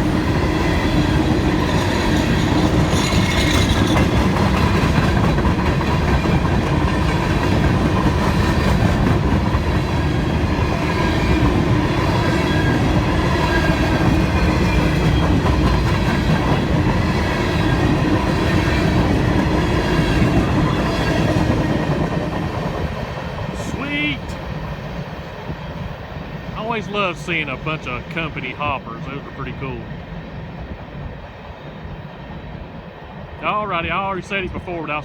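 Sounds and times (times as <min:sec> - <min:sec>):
freight train rolling past: 0:00.0 - 0:35.0
steel wheels clattering over rail joints: 0:00.6 - 0:23.4.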